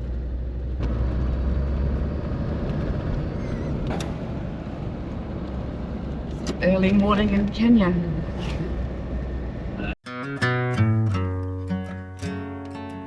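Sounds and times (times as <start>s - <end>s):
diesel engine rumble: 0.0s - 10.0s
road and tyre noise: 0.0s - 10.0s.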